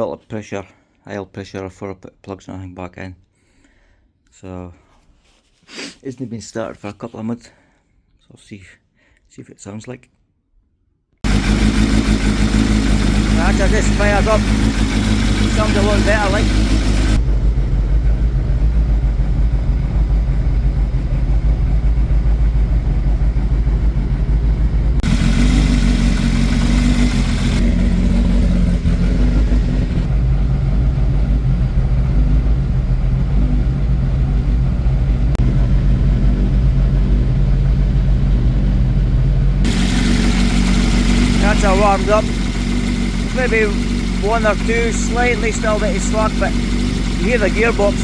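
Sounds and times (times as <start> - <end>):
valvetrain ticking: 11.2 - 17.2, 39.7 - 48.0
car engine running: 11.2 - 48.0.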